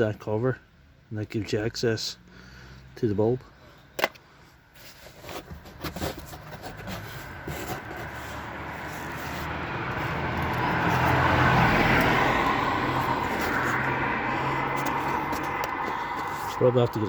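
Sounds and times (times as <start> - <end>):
vehicle driving past: 7.4 - 16.6.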